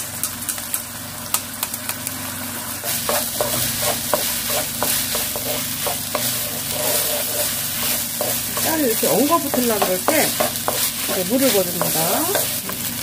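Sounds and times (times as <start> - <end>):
rice sizzling in oil: 0.0 - 13.0
wooden spatula stirring and scraping: 2.8 - 13.0.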